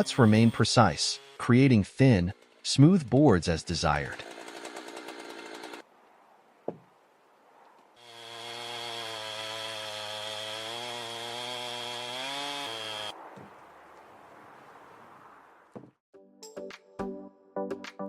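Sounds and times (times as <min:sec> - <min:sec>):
chainsaw cutting through log: 0:00.0 - 0:05.8, 0:08.0 - 0:13.1.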